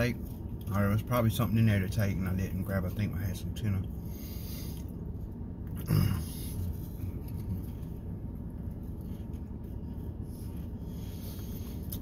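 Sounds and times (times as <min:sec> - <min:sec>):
low background hum: 0:00.0 - 0:12.0
man chewing crunchy crackers: 0:04.6 - 0:12.0.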